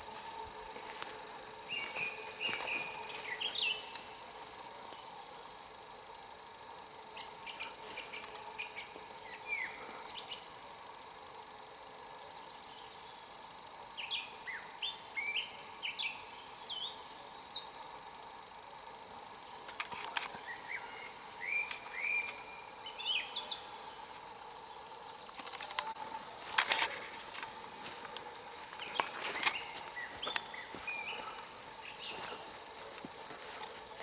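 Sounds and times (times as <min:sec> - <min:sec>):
songbird chirping: 0:00.1 - 0:05.3, 0:07.1 - 0:11.0, 0:20.3 - 0:25.6, 0:27.4 - 0:34.0.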